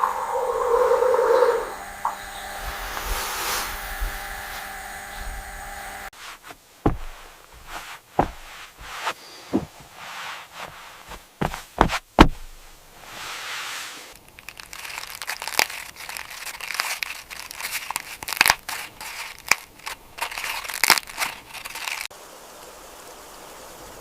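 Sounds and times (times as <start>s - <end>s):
steady hiss: 0.0s - 24.0s
crinkling handling noise: 6.1s - 22.1s.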